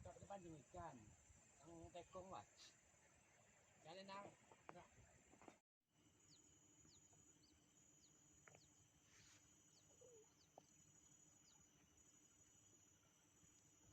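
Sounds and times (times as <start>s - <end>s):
faint steady high hum: 6.0s - 13.9s
soft high chirps: 6.3s - 12.6s.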